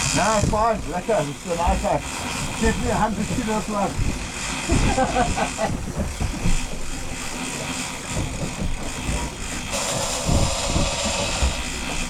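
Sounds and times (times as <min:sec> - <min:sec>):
boat engine rumble: 0:00.0 - 0:12.0
water wash: 0:00.0 - 0:12.0
loud hiss: 0:09.7 - 0:11.9.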